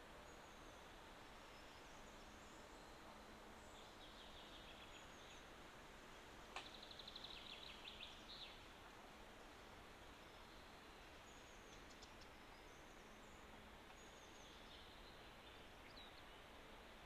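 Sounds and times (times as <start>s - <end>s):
distant small birds chirping: 6.2s - 17.0s.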